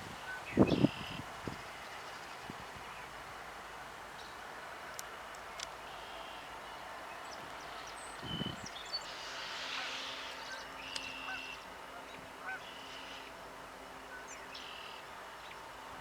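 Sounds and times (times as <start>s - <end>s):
low honk-like bird call: 9.7s - 13.2s.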